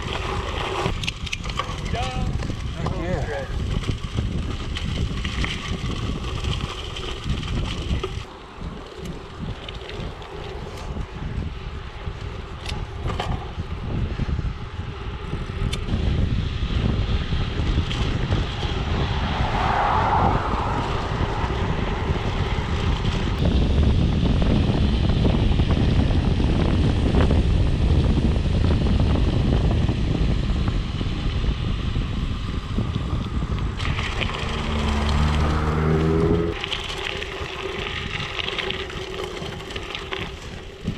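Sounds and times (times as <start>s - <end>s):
bike tyres on rough surface: 0.0s - 40.9s
wind rumble on microphone: 0.0s - 40.9s
short rising whine: 18.8s - 23.4s.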